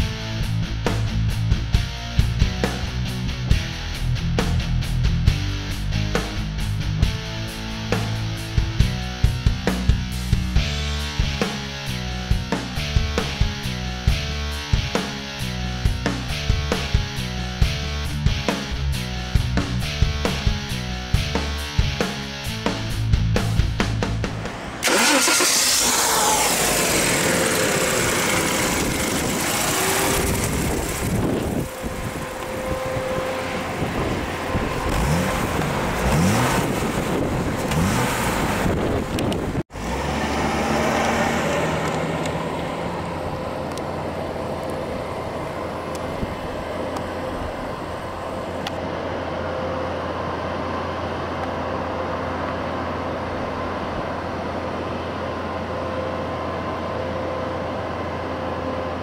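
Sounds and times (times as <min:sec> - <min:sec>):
car engine droning: 0:22.9 - 0:59.0
car engine revving: 0:23.8 - 0:48.8.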